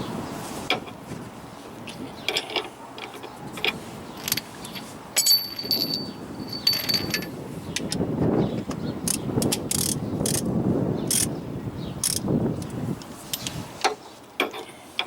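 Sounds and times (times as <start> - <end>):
metal hand tools clinking: 4.2 - 7.3.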